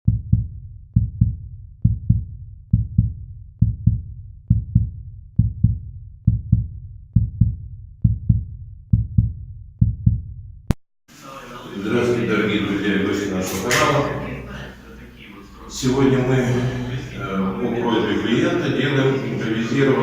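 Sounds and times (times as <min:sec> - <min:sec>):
heartbeat-like low thumps: 0:00.1 - 0:10.8.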